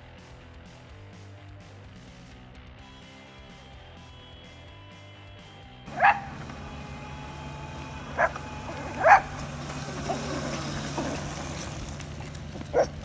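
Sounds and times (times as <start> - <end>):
small dog barking: 5.9 - 6.4, 8.1 - 9.4, 12.7 - 13.0.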